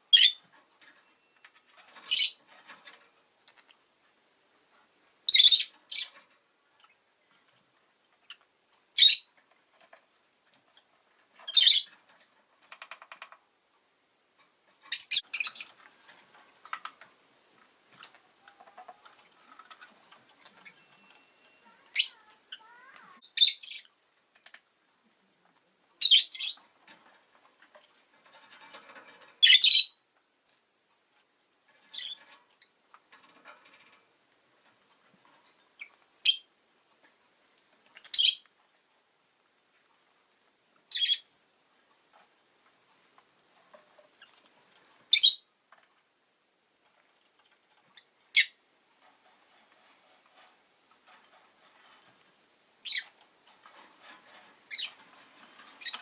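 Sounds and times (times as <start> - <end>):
lovebird shrill chirps: 0.1 - 0.4, 5.3 - 6.1, 38.1 - 38.4, 45.1 - 45.5
bird twittering and chatter: 20.5 - 23.9, 26.0 - 26.7, 53.7 - 56.0.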